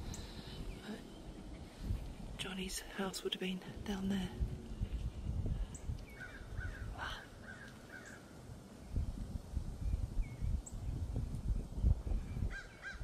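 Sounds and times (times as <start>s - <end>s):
low rumble: 0.0s - 7.5s
bird calling: 6.0s - 8.3s.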